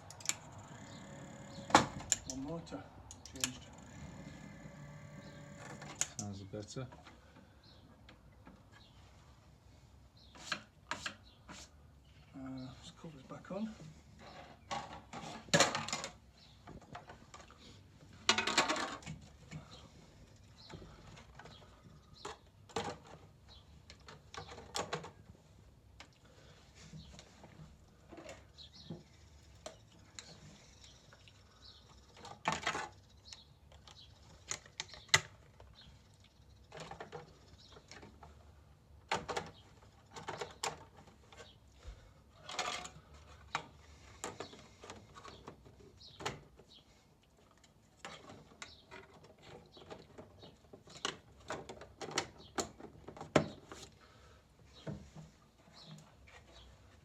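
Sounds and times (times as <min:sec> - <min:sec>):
parts and tools clicking and knocking: 0:00.0 - 0:02.5, 0:18.2 - 0:25.3, 0:39.0 - 0:41.6, 0:47.5 - 0:54.0.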